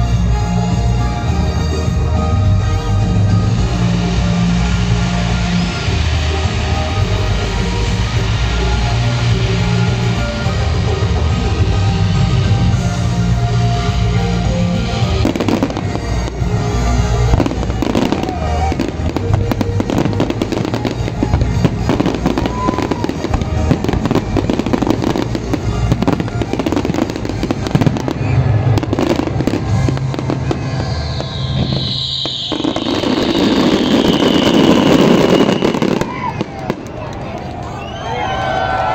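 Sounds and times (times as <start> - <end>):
fireworks bangs and crackles: 0.0 - 38.9
music: 0.0 - 38.9
high whistle falling in pitch: 25.9 - 36.8.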